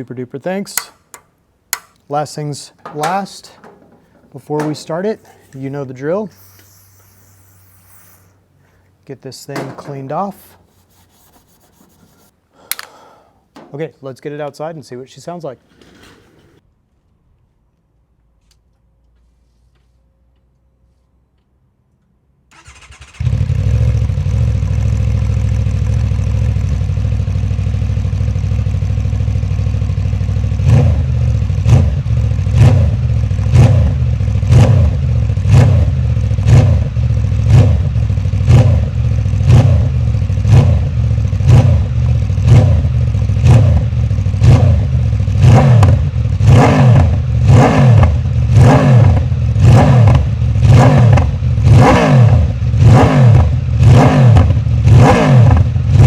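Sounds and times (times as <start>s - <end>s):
motorcycle engine idling: 2.8s - 5.4s, 23.2s - 46.4s
engine cranking: 22.5s - 23.4s
motorcycle engine revving: 22.6s - 56.0s.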